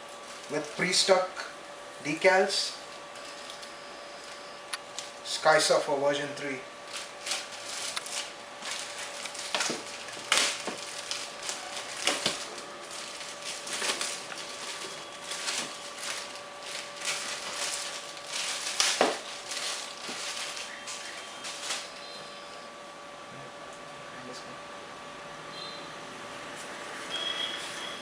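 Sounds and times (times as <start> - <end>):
packaging crinkling and rustling: 2.8 - 5.2, 6.8 - 22.1.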